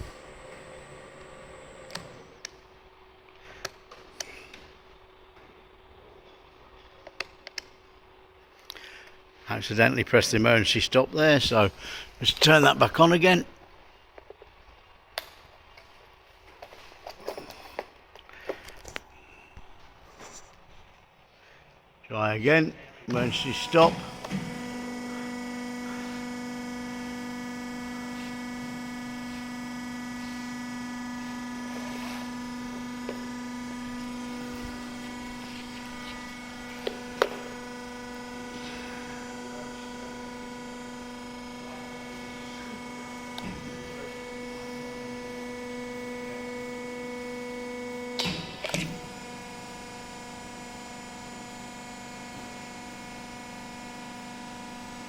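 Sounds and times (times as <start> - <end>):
motor and pump humming: 0.0 - 5.5, 23.1 - 55.0
machine clunk: 23.1 - 25.1, 42.0 - 44.4, 48.1 - 49.2.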